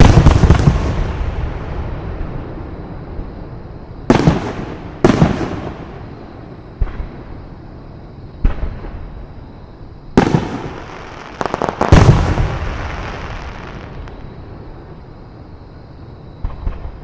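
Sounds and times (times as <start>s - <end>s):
sharp firework cracks: 0.0s - 1.6s, 4.1s - 5.9s, 10.2s - 14.2s
firework shells booming: 0.0s - 2.3s, 4.1s - 7.2s, 10.2s - 14.2s.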